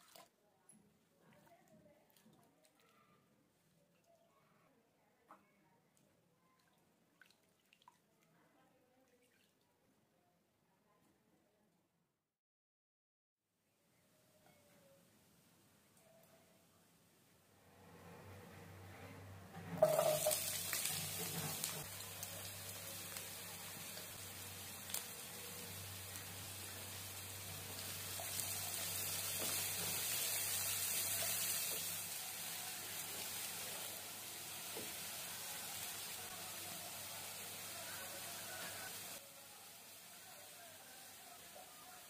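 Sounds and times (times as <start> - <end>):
spatula stirring: 19.8 - 21.8
shallots sizzling in hot oil: 19.8 - 42.0.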